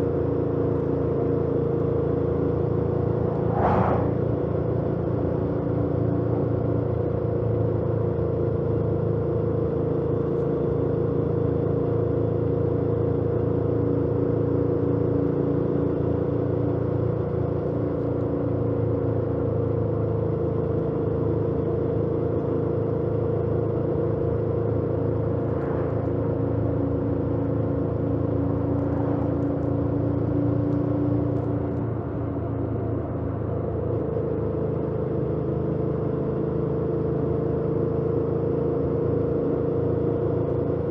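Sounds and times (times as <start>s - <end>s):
motorcycle engine cruising: 24.2s - 31.9s.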